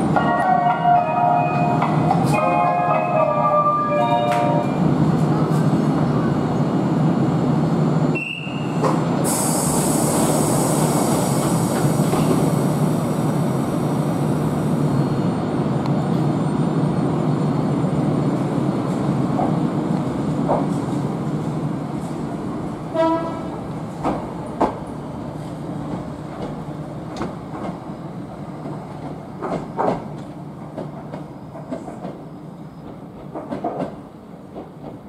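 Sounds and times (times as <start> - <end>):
air hissing: 9.2 - 14.8.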